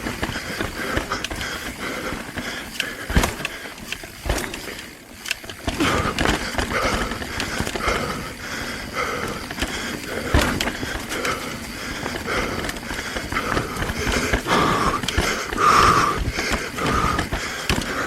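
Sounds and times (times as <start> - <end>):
bike rattling over rocks: 0.0 - 18.0
bike tyres rumbling: 0.0 - 18.0.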